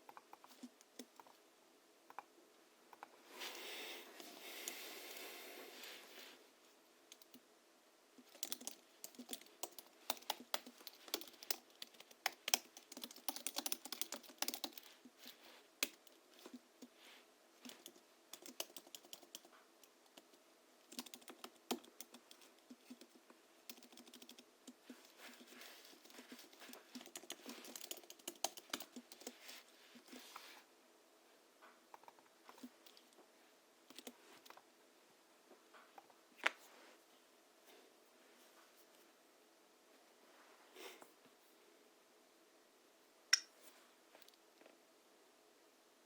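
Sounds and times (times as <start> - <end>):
keyboard typing: 8.2 - 16.9, 17.6 - 29.4, 33.9 - 34.6.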